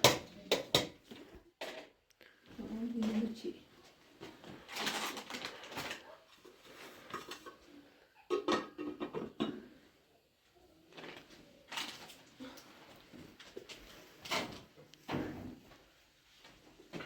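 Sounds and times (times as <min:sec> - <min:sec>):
kitchenware clinking and knocking: 0:00.0 - 0:01.9, 0:08.2 - 0:09.8.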